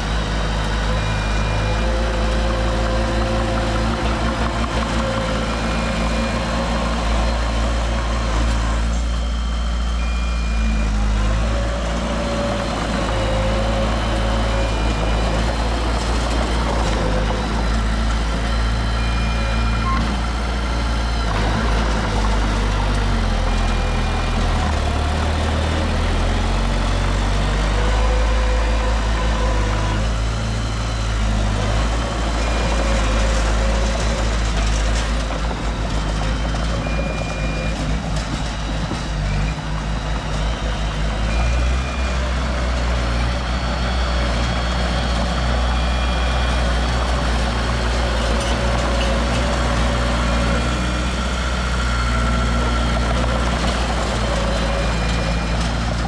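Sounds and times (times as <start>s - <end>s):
diesel machinery engines rumbling: 0.0s - 56.0s
short high beeps: 9.1s - 11.0s.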